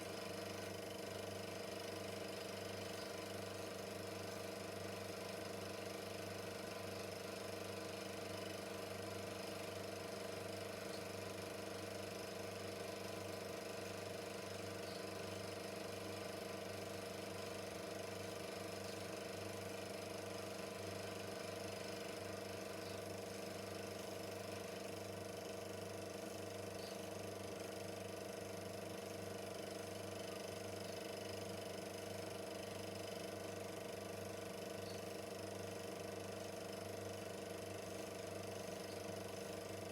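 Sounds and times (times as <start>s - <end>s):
film projector motor whirring: 0.0s - 39.9s.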